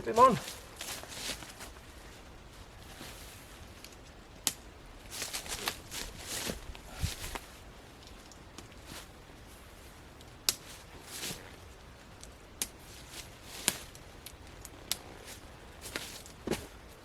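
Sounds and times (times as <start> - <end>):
tent fabric rustling: 0.0 - 4.2, 4.9 - 17.0
tent clips snapping onto poles: 3.8 - 9.2, 10.1 - 16.9.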